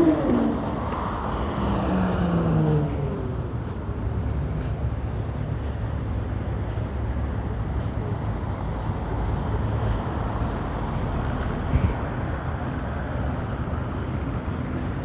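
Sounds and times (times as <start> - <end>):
low engine rumble: 0.0 - 6.9.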